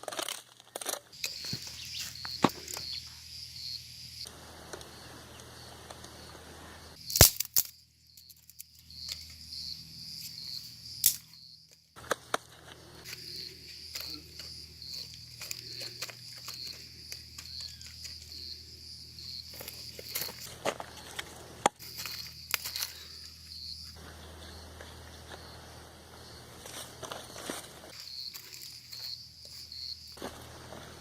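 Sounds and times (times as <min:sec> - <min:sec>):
insects chirping: 0:01.1 - 0:31.0
sharp cracks: 0:07.1 - 0:07.7
rustling: 0:19.4 - 0:23.3, 0:26.4 - 0:31.0.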